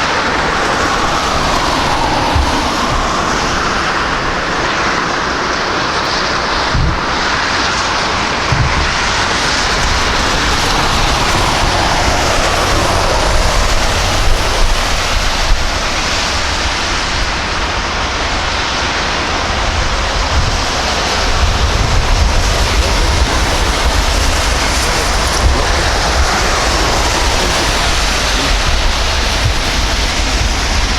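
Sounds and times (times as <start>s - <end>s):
jet airliner passing: 0.0s - 30.9s.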